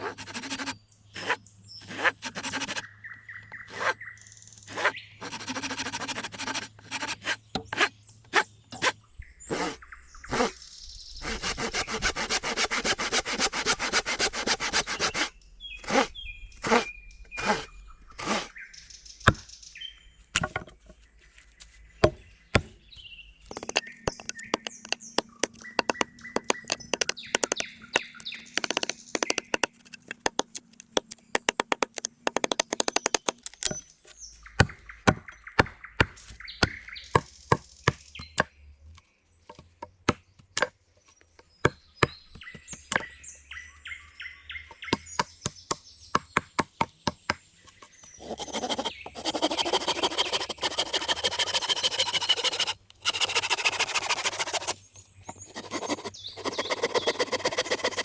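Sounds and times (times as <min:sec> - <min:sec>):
rapid scraping on wood: 0:00.0 - 0:02.9, 0:03.5 - 0:04.0, 0:04.6 - 0:18.6, 0:23.5 - 0:33.6, 0:47.7 - 0:58.0.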